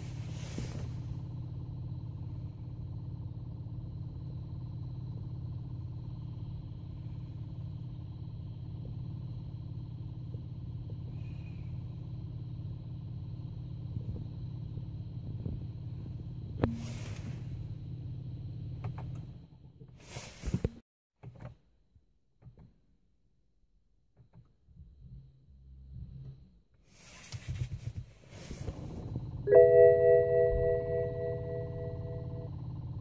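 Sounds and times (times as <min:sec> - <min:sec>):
diesel engine idling: 0:00.0 - 0:18.8.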